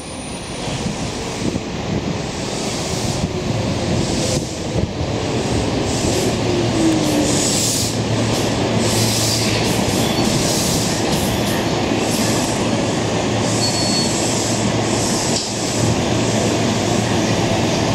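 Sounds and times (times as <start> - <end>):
train rumble and wheel clatter: 0.0 - 17.9
high brake squeal: 8.9 - 11.7, 13.4 - 15.3.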